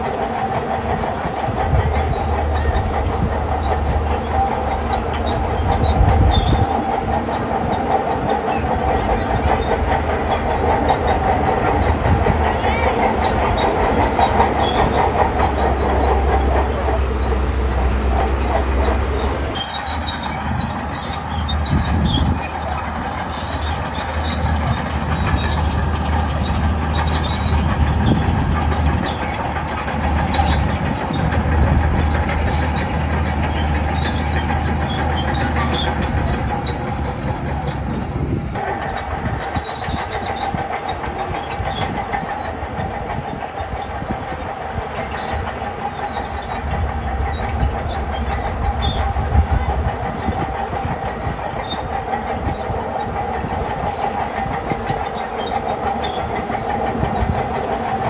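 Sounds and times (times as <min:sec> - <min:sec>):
bulldozer engine under load: 0:00.0 - 0:58.0
steel tracks clanking and squealing: 0:00.0 - 0:58.0.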